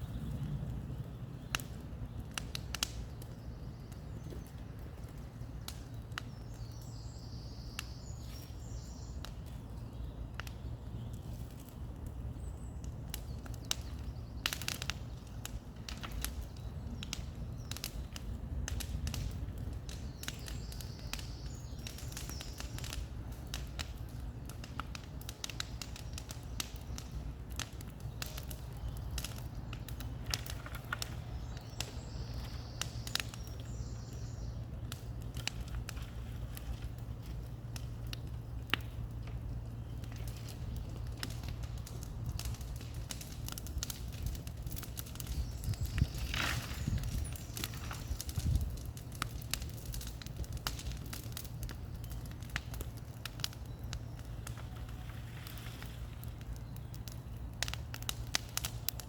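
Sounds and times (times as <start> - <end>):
bird singing: 0.0 - 11.3, 20.0 - 22.9, 28.1 - 35.7, 45.0 - 48.6
bonfire crackling and popping: 0.0 - 59.0.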